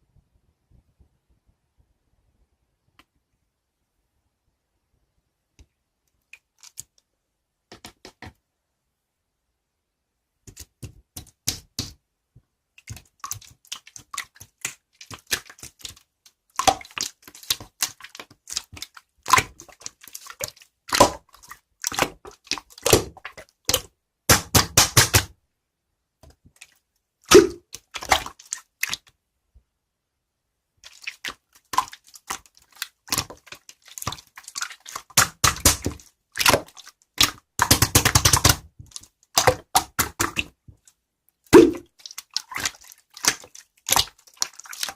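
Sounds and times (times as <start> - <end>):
slime squeezed with sticky pops: 12.8 - 25.3, 27.3 - 29.1, 30.8 - 40.8, 41.5 - 44.9
crackling pops of slime: 35.0 - 40.5.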